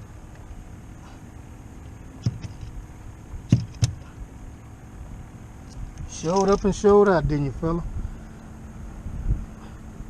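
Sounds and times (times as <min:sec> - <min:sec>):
steady low rumble: 0:00.0 - 0:10.0
sharp knocks: 0:02.2 - 0:02.6, 0:03.5 - 0:04.0.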